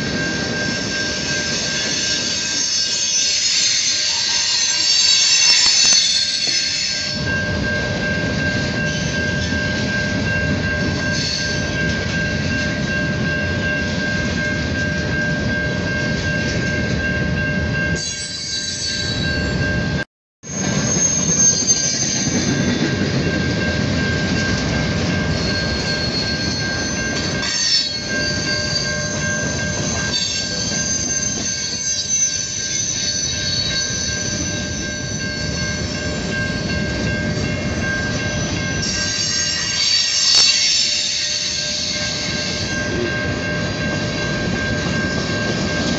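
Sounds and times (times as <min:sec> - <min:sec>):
metallic wheel squeal: 0:00.7 - 0:07.4, 0:18.0 - 0:19.6, 0:20.5 - 0:22.9, 0:25.3 - 0:36.4, 0:38.2 - 0:43.1
freight cars rumbling on rails: 0:19.1 - 0:45.9.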